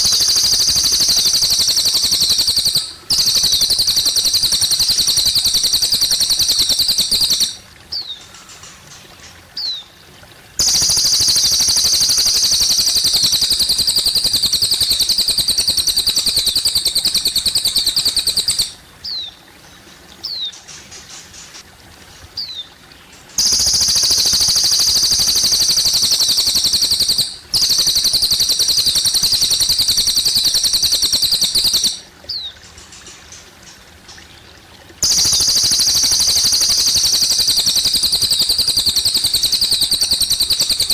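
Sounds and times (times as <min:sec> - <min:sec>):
bird trilling: 0:00.0 - 0:08.7, 0:10.6 - 0:19.3, 0:23.4 - 0:32.5, 0:35.0 - 0:40.9
faint trickling water: 0:00.0 - 0:40.9.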